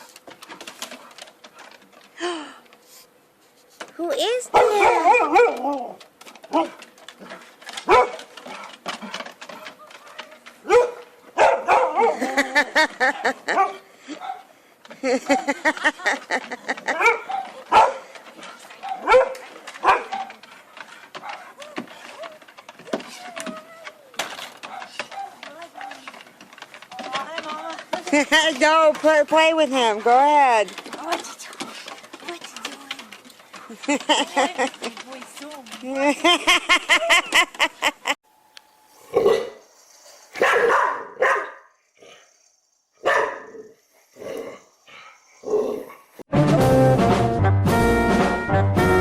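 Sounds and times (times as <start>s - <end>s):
dog barking: 4.5s - 5.6s, 7.8s - 8.2s, 10.6s - 12.2s, 13.5s - 14.5s, 17.0s - 18.0s, 18.8s - 20.4s, 24.6s - 26.0s, 40.4s - 41.7s, 43.0s - 43.7s.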